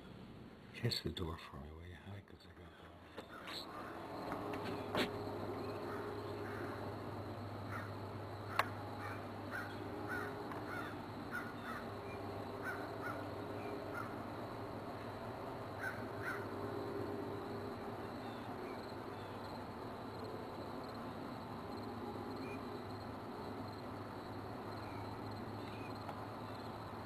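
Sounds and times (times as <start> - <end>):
steady low hum: 0.0 - 27.0
bird calling: 2.4 - 6.9, 7.6 - 14.2, 15.8 - 16.6.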